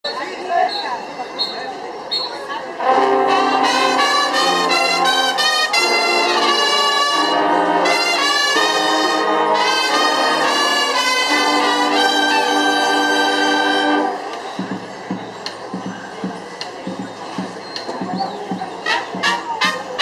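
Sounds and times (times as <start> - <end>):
brass section playing chords: 2.8 - 14.3, 18.8 - 20.0.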